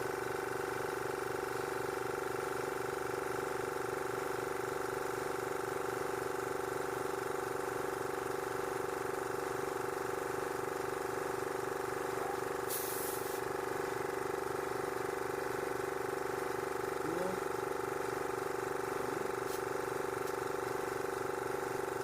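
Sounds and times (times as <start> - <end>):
tyre inflator pulsing hum: 0.0 - 22.0
brief air hiss: 12.7 - 13.4.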